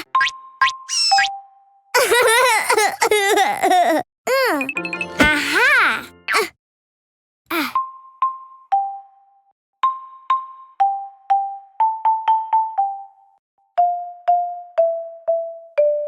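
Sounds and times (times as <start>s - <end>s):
xylophone-like mallet melody: 4.6s - 6.2s, 7.8s - 9.2s, 9.8s - 16.0s.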